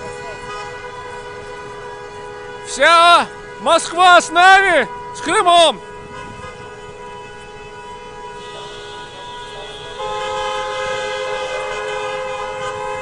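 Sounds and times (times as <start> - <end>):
car horns honking: 0.0 - 13.0
loud car horn: 0.0 - 13.0.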